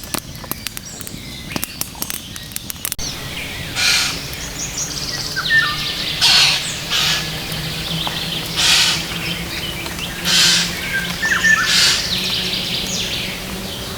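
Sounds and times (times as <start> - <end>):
small birds chirping: 0.0 - 13.9
harsh hissing bursts: 3.0 - 13.9.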